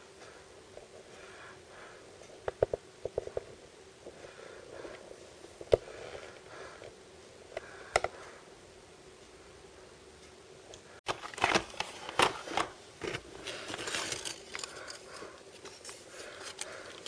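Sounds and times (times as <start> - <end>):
packaging clicks and taps: 11.1 - 17.0
packaging crinkling: 11.1 - 17.0.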